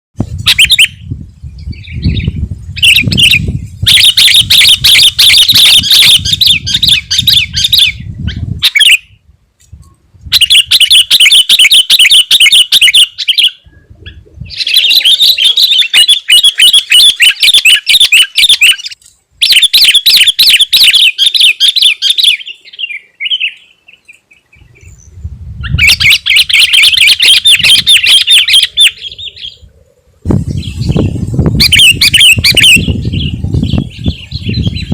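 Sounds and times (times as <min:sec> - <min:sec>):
bird chattering song: 0:10.4 - 0:29.7, 0:30.5 - 0:34.9.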